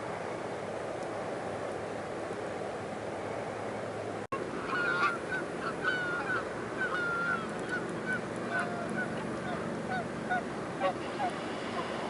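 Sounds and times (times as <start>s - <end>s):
low background hiss: 0.0s - 12.0s
flock of geese honking: 4.6s - 12.0s.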